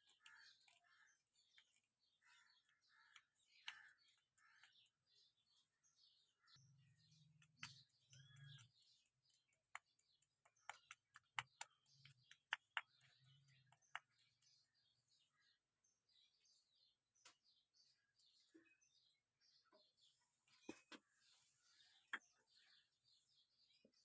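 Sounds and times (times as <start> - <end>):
faint bird chirping: 0.0 - 24.0
small sharp clicks and taps: 2.6 - 5.0, 7.2 - 14.6.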